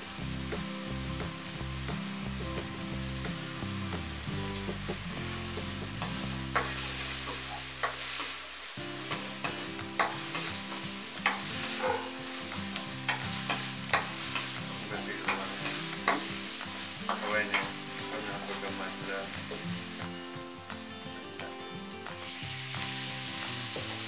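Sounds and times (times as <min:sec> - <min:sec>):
aromatics sizzling in a wok: 0:00.0 - 0:24.0
metal spoon scraping a pan: 0:06.0 - 0:08.4, 0:09.1 - 0:16.5, 0:17.1 - 0:18.7.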